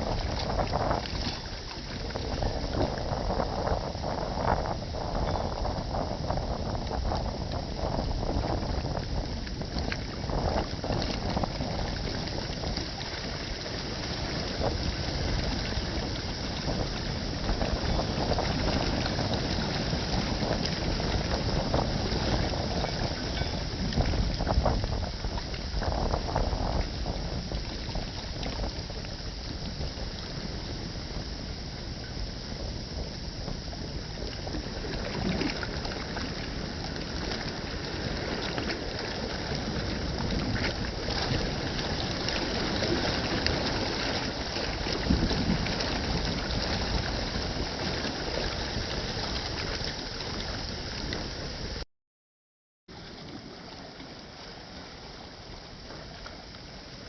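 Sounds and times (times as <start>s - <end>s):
water rushing past hull: 0.0s - 51.8s
wind noise: 0.0s - 51.8s.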